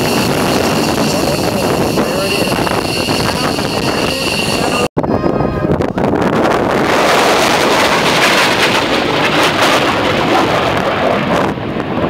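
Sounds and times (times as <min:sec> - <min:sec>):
jet engine roar: 0:00.0 - 0:12.0.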